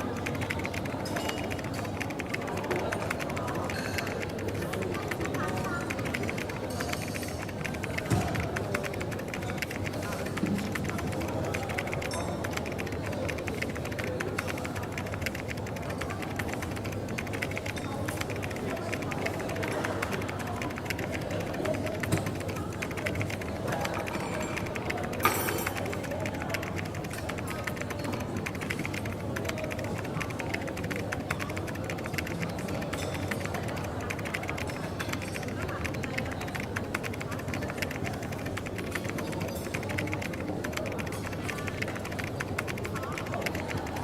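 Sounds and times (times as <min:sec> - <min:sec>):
rapid light clicks: 0:00.0 - 0:44.0.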